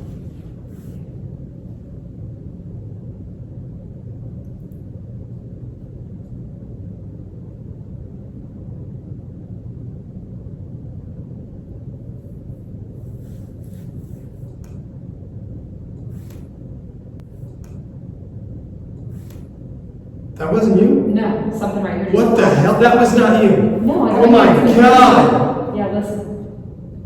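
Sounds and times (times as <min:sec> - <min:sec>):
low background rumble: 0:00.0 - 0:27.0.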